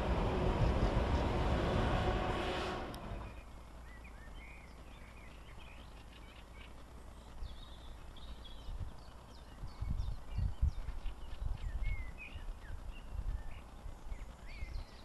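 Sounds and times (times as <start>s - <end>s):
faint low rumble: 0.0s - 15.0s
small birds chirping and singing: 3.2s - 15.0s.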